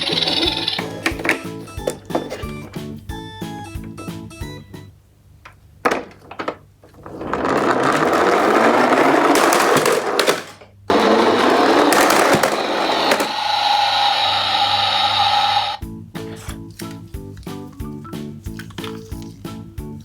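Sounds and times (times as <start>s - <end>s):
toy car wheels whirring rattle: 0.0s - 2.6s, 7.0s - 15.8s.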